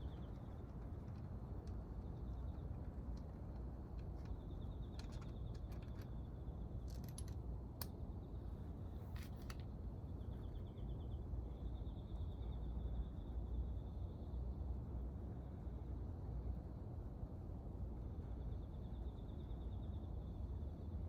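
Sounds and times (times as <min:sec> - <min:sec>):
light clicks and taps: 0:00.0 - 0:08.0
low steady rumble: 0:00.0 - 0:21.0.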